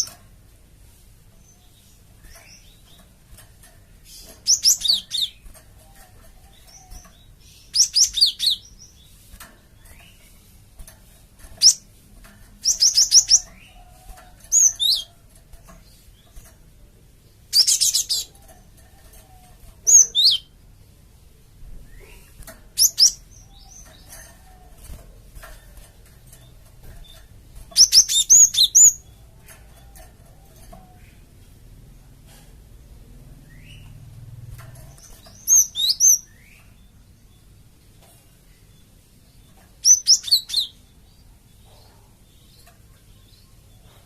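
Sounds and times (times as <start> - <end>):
bird high chirps: 4.0 - 10.5, 11.4 - 11.9, 12.6 - 16.5, 17.5 - 20.6, 21.7 - 31.4, 34.8 - 37.5, 39.5 - 44.0.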